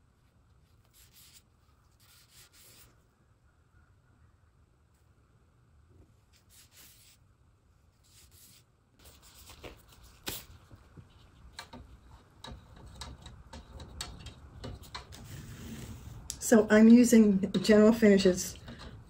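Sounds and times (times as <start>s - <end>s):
faint rubbing and handling: 0.0s - 3.1s, 6.0s - 16.3s
light clicks and taps: 10.3s - 15.3s.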